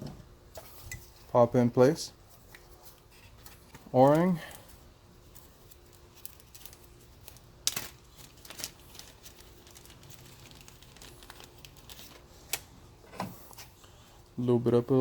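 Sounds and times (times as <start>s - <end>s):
small parts clicking and crinkling: 5.2s - 12.6s.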